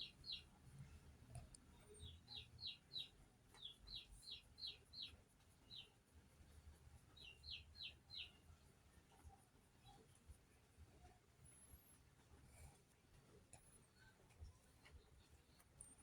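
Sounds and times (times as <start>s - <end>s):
faint bird chirping: 0.0s - 16.0s.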